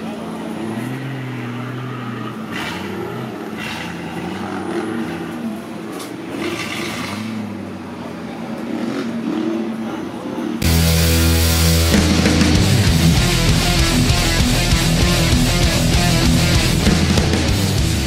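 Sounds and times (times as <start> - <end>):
engine revving under load: 0.0 - 18.0
rock music: 10.6 - 18.0.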